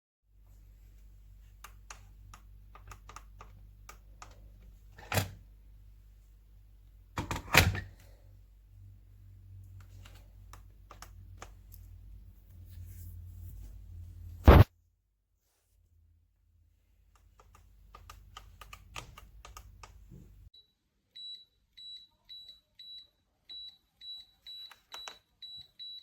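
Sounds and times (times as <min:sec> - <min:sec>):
low steady hum: 0:00.3 - 0:14.7.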